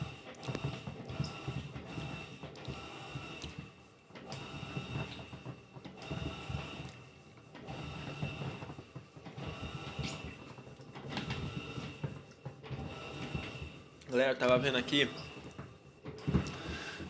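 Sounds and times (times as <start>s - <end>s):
washing machine agitating: 0.0s - 17.0s.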